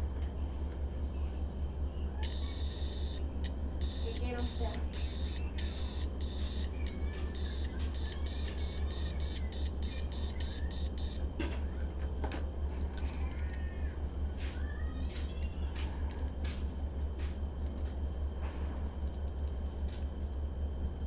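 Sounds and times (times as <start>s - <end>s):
steady low hum: 0.0s - 21.0s
washing machine beeping: 1.8s - 12.2s, 13.2s - 19.9s.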